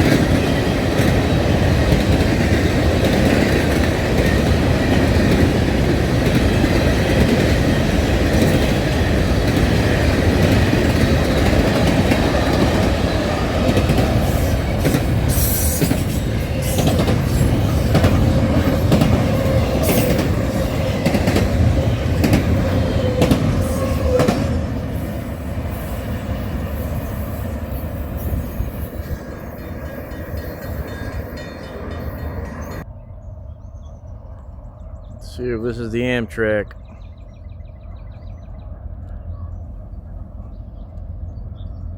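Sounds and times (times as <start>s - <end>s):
wheels clicking over rail joints: 0.0s - 32.8s
train rumbling past: 0.0s - 41.9s.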